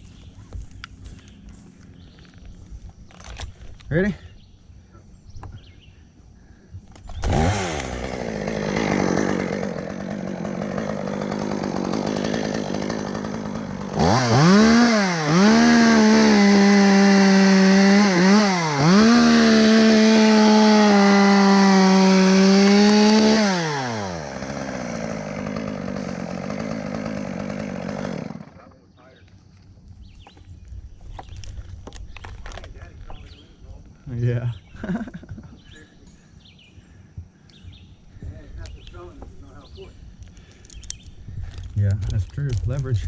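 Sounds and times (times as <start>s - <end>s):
chainsaw revving and idling: 7.0s - 28.8s.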